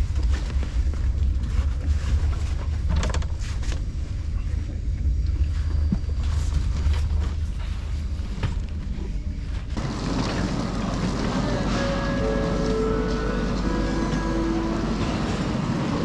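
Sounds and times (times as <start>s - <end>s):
train interior rumble: 0.0s - 16.0s
busy ambience: 4.0s - 16.0s.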